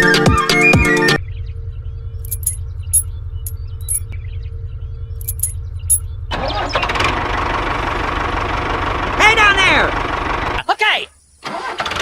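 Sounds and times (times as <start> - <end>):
sharp metallic clinks: 2.2 - 4.1, 5.2 - 6.0.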